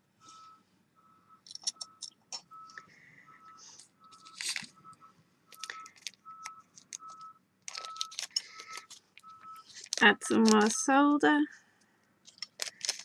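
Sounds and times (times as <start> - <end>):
short electronic beeps: 0.2 - 9.7
sharp clicks and scrapes: 1.4 - 2.9, 3.7 - 4.8, 5.5 - 10.8, 12.2 - 13.0.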